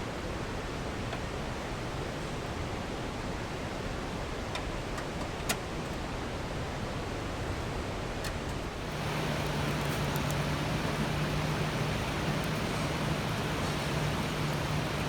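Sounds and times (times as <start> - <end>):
light clicks: 8.2 - 15.0
low steady hum: 8.7 - 15.0
mountain stream rushing: 8.7 - 15.0.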